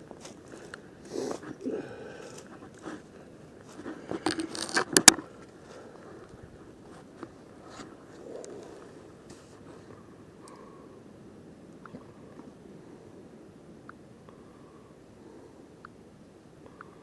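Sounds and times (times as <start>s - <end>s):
gear rustling and scraping: 2.2s - 8.7s.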